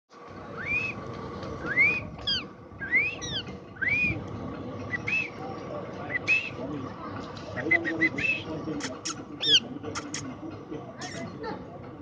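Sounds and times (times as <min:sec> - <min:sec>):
parrot shrill calls: 0:02.2 - 0:03.4.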